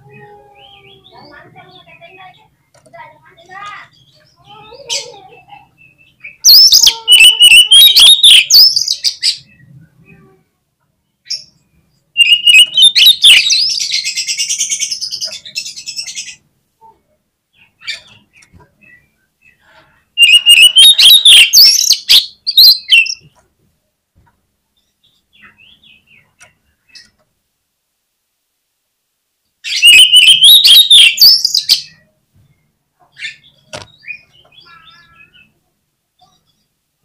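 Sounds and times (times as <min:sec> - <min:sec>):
bird singing whistled phrases: 0:06.2 - 0:09.3, 0:12.2 - 0:14.1, 0:20.2 - 0:23.2, 0:29.7 - 0:32.0.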